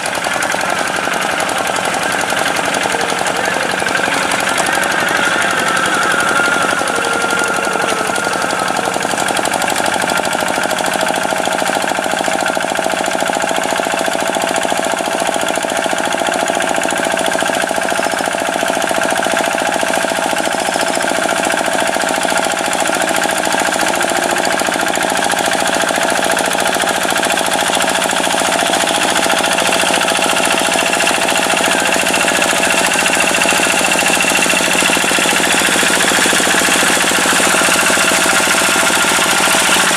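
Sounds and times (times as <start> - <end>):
tractor engine knocking: 0.0 - 39.9.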